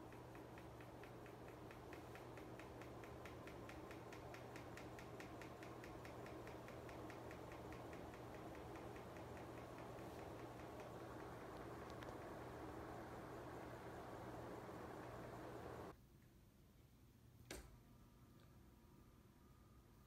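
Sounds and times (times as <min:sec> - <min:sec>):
rapid ticking: 0:00.0 - 0:15.9
ceiling fan humming: 0:00.0 - 0:20.0.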